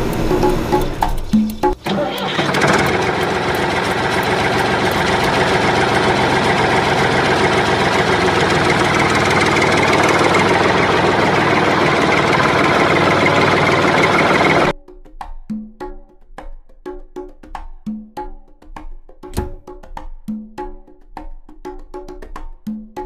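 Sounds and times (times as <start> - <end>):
engine idling: 0.0 - 14.7.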